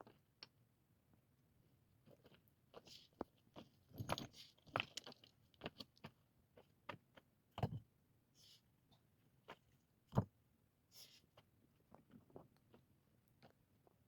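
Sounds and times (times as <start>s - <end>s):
small clicks and knocks: 3.2s - 5.9s.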